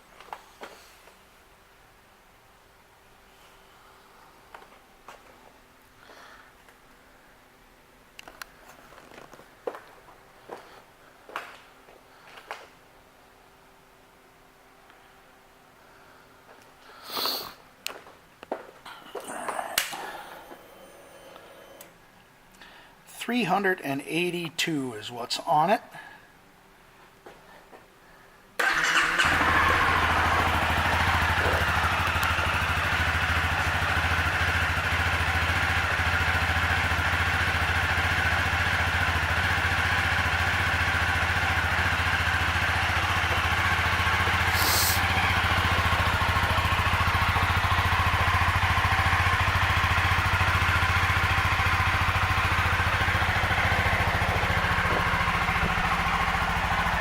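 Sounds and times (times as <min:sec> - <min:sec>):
brief high hiss: 0:17.0 - 0:17.6, 0:44.5 - 0:45.0
motorcycle engine idling: 0:28.6 - 0:57.0.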